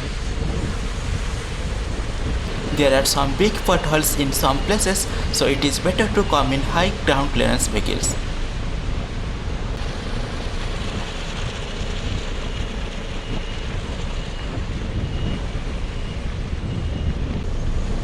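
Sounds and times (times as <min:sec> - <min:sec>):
wind rumble: 0:00.0 - 0:18.0.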